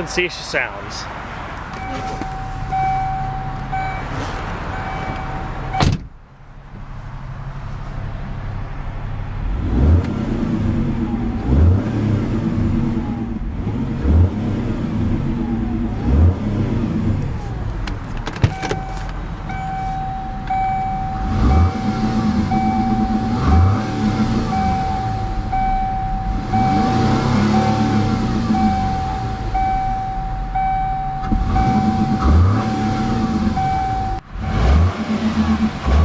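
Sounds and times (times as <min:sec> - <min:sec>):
car engine idling and revving: 0:00.0 - 0:36.0
electronic warning beep: 0:01.8 - 0:05.9, 0:18.5 - 0:34.9.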